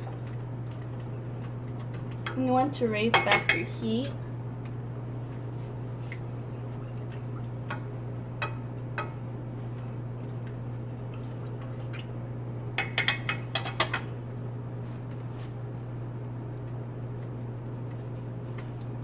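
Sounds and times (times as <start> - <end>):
low stove hum: 0.0 - 19.0
drips and pops: 6.1 - 13.9.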